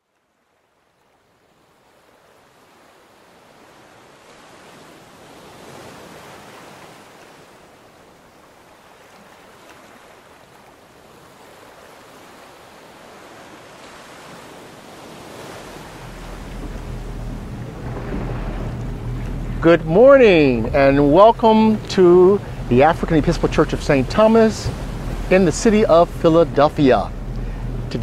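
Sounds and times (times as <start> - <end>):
wind and water rushing: 0.0 - 28.0
low rumble: 15.5 - 28.0.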